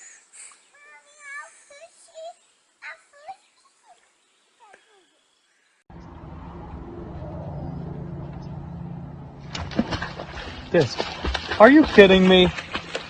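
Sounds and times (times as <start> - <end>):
low motor hum: 5.9 - 13.0.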